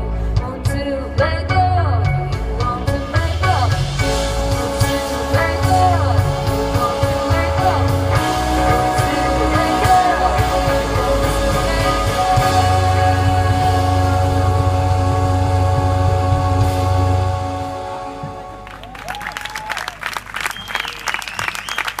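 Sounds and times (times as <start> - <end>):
person singing: 0.0 - 16.6
heavy bass: 0.0 - 19.2
live rock band playing: 0.0 - 19.2.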